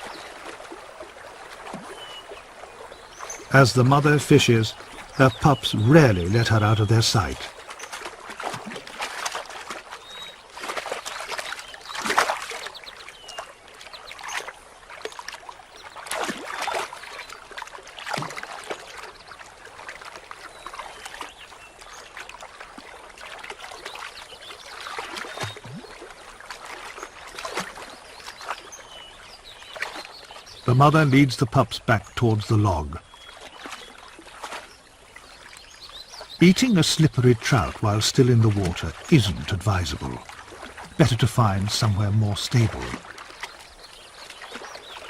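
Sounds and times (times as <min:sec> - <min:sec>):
stream trickling: 0:00.0 - 0:45.0
water splashing: 0:00.0 - 0:45.0.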